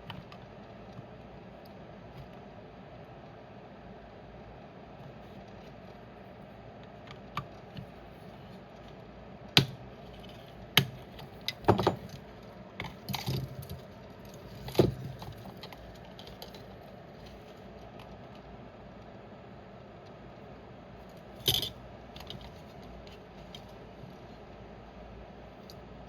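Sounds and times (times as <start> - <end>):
small tools and plastic parts clicking: 12.8 - 18.4, 21.2 - 23.8.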